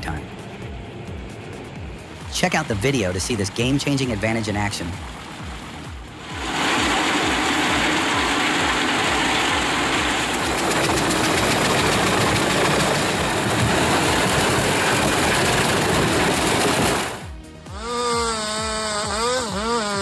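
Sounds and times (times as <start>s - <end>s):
wood chipper running: 5.5s - 17.4s.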